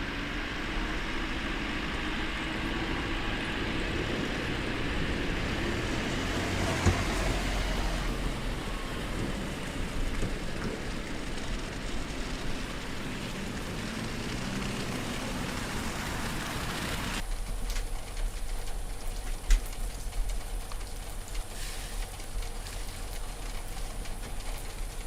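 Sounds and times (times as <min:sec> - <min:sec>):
low rumble: 0:00.0 - 0:17.4
vehicle engine running: 0:00.0 - 0:25.0.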